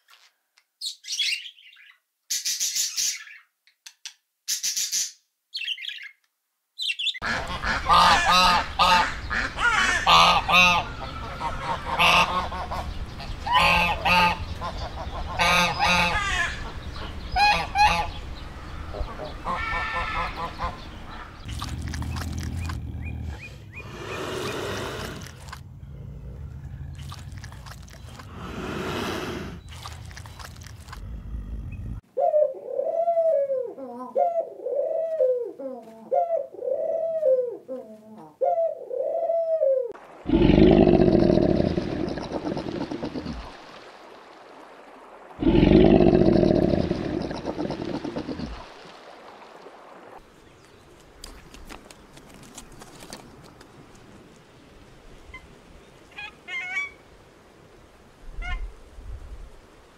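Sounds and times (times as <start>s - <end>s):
low crocodile growls: 21.5s - 32.0s, 40.3s - 43.6s, 45.4s - 48.7s
pigeons cooing: 30.9s - 43.6s, 45.4s - 48.8s.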